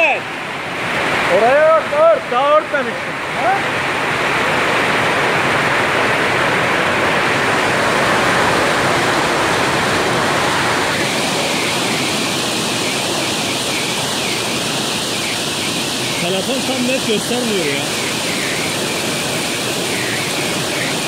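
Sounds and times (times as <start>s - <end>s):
heavy rain and hail: 2.8s - 21.0s.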